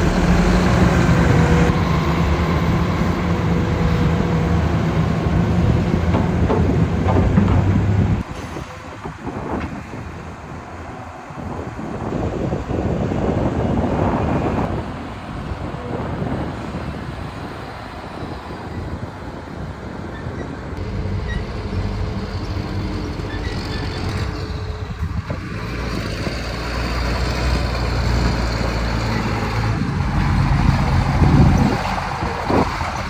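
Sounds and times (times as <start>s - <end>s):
diesel machinery engine drone: 0.0s - 33.0s
short knocks: 5.3s - 8.5s.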